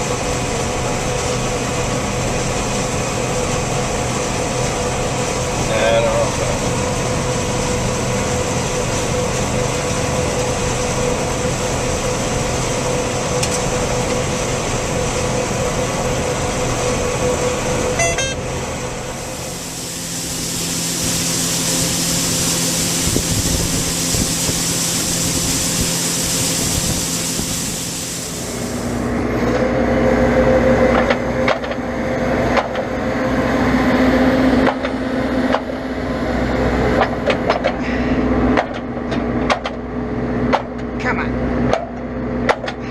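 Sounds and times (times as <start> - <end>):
droning engine hum: 0.0 - 42.9
engine drone: 0.0 - 42.9
loud even hiss: 18.8 - 29.2.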